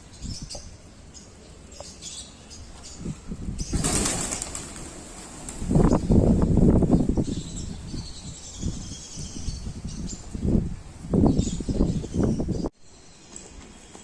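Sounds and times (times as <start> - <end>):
pigeons wings flapping: 3.7 - 5.8.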